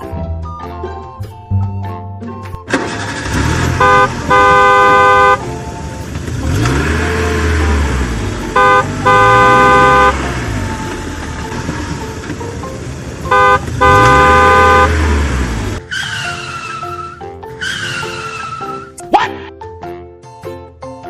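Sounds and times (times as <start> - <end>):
engine rumble: 2.7 - 18.7
vehicle horn blasts: 3.6 - 5.4, 8.5 - 10.4, 13.2 - 15.3.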